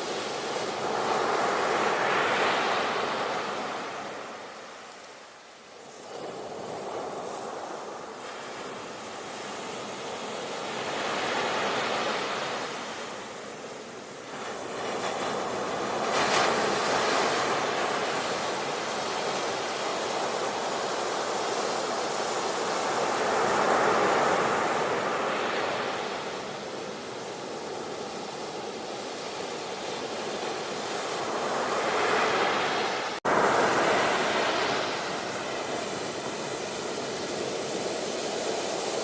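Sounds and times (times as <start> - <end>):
sea waves breaking: 14.2 - 39.0.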